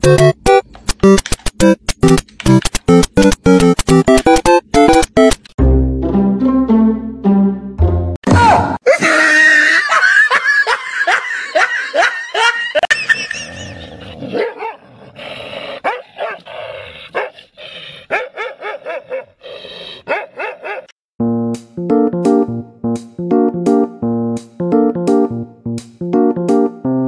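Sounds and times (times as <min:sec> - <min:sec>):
dog barking and yipping: 0:14.2 - 0:14.9, 0:15.8 - 0:16.5, 0:17.1 - 0:17.5, 0:18.1 - 0:19.4, 0:20.0 - 0:20.9.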